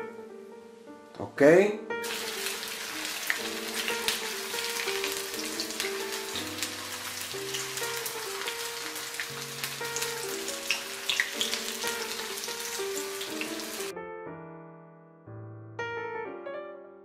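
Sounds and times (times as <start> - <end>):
soft background music: 0.0 - 17.0
sausages sizzling in oil: 2.0 - 13.9.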